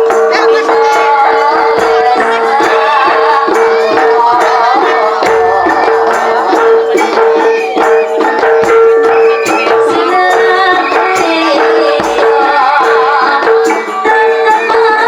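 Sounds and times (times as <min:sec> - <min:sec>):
percussion ensemble steady beat: 0:00.0 - 0:15.0
wavering melody: 0:00.0 - 0:15.0.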